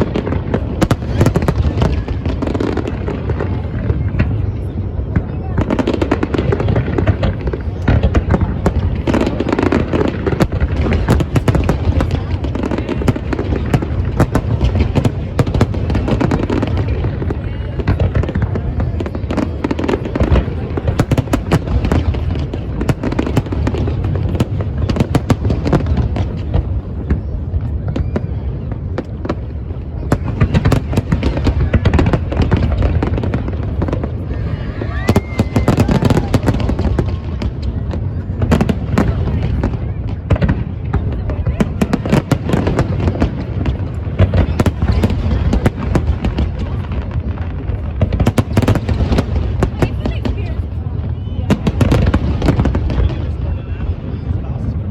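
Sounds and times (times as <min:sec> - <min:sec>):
fireworks bangs and crackles: 0:00.0 - 0:54.9.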